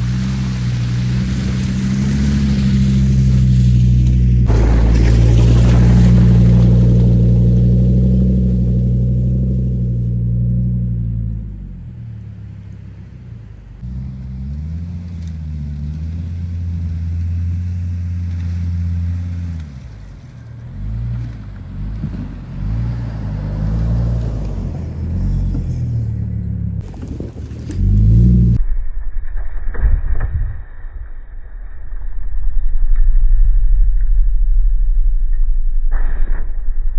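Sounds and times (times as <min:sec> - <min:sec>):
engine revving: 0:00.0 - 0:28.6.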